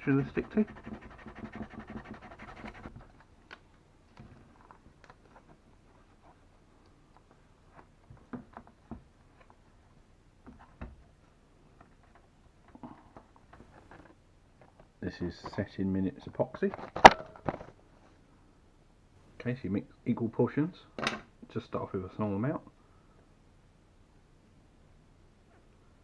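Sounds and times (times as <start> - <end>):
sandpaper scratching plastic: 0.0 - 3.0.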